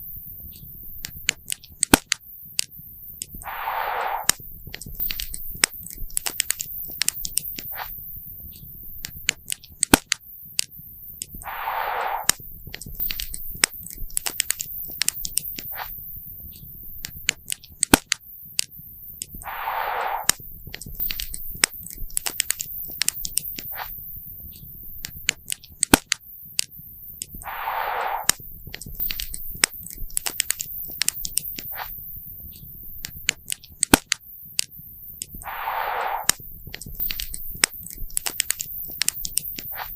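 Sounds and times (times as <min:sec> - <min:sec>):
short hiss: 0:03.4 - 0:04.4, 0:11.4 - 0:12.4, 0:19.4 - 0:20.4, 0:27.4 - 0:28.5, 0:35.4 - 0:38.0.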